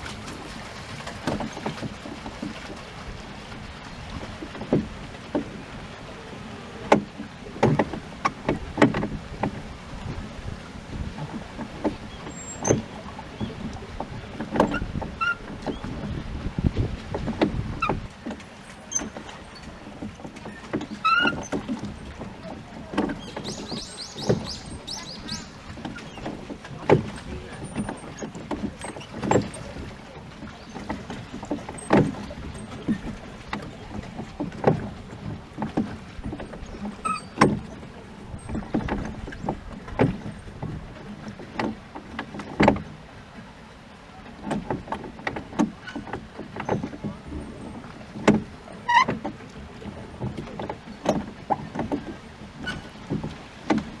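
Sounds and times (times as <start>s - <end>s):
oars dipping into water: 0.0s - 54.0s
oars knocking in oarlocks: 6.8s - 10.2s, 10.9s - 42.9s, 44.4s - 54.0s.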